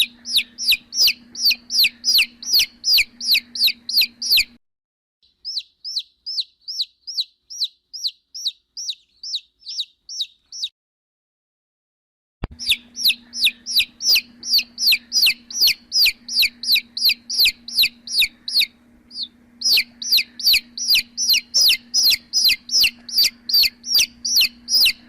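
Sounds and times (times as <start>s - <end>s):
chick peeping loudly: 0.0s - 4.6s, 5.2s - 10.7s, 12.4s - 25.0s
faint low hum: 0.0s - 4.6s, 12.4s - 25.0s.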